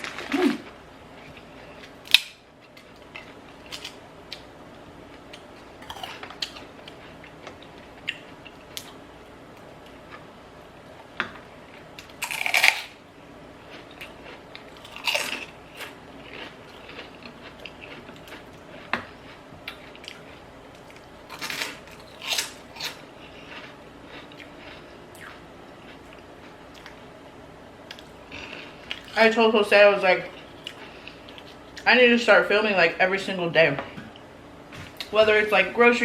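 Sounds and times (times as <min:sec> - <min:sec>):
quiet chewing: 0:05.1 - 0:10.3, 0:13.6 - 0:27.0, 0:27.8 - 0:29.2, 0:30.2 - 0:31.9
crunchy salad bites: 0:05.2 - 0:09.0, 0:11.8 - 0:13.0, 0:13.7 - 0:27.0.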